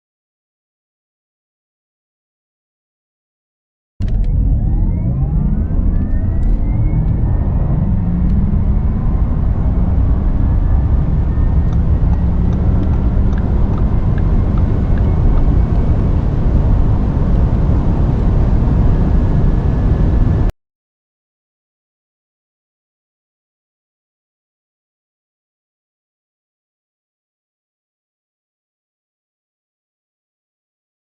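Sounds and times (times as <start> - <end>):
electric motor whine: 4.0 - 20.5
road and wind noise: 4.0 - 20.5.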